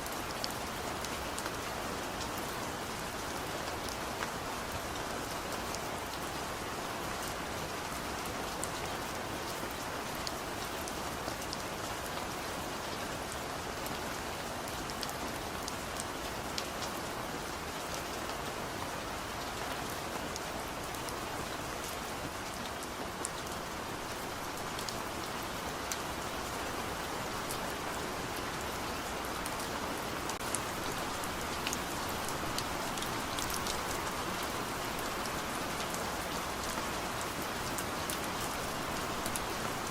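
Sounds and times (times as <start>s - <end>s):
heavy rain: 0.0s - 39.9s
raindrops ticking on a surface: 12.8s - 39.9s.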